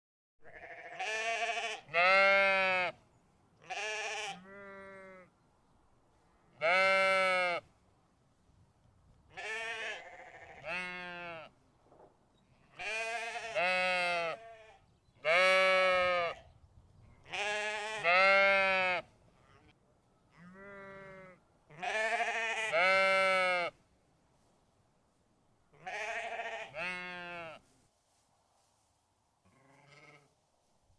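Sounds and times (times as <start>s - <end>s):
sheep bleating: 0.4s - 3.0s, 3.6s - 5.3s, 6.6s - 7.7s, 9.3s - 11.5s, 12.7s - 16.5s, 17.3s - 23.8s, 25.8s - 27.6s, 29.5s - 30.3s.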